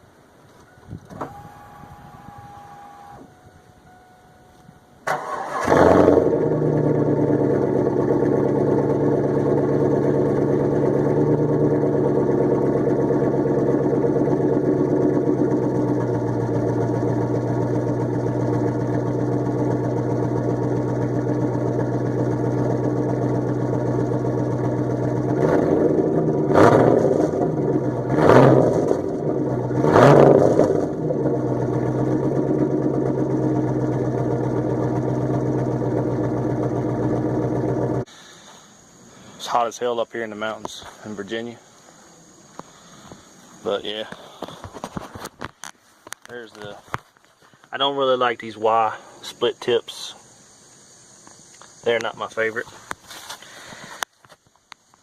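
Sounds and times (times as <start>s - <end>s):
faint steady whine: 0.0s - 5.6s, 30.9s - 55.0s
car engine starting and idling: 0.0s - 39.6s.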